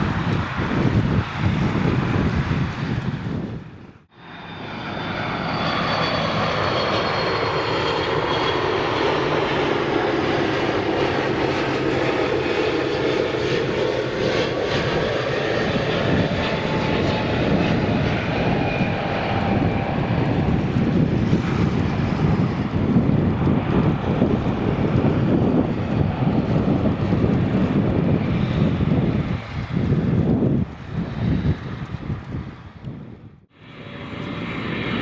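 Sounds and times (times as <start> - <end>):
jet engine rumble: 0.0 - 35.0
rushing air: 0.0 - 35.0.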